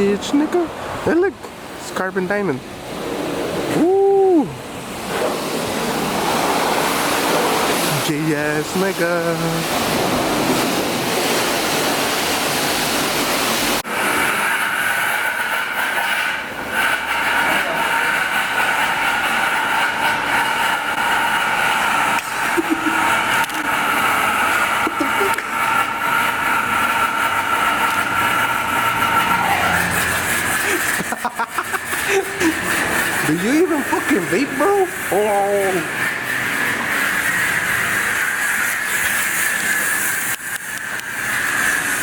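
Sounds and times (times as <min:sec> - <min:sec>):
high-pressure water spray: 0:02.8 - 0:42.0
rushing noise with high whine: 0:02.8 - 0:42.0.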